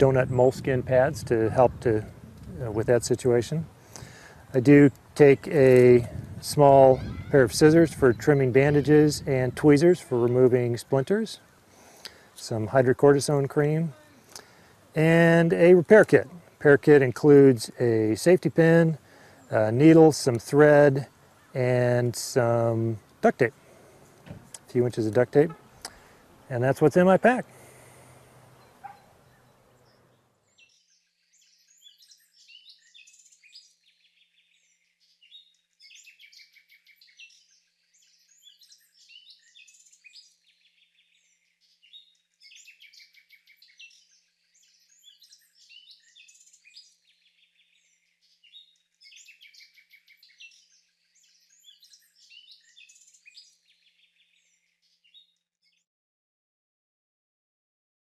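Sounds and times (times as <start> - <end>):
faint outdoor hiss: 0.0 - 55.5
songbird singing rapid high notes: 2.6 - 11.4.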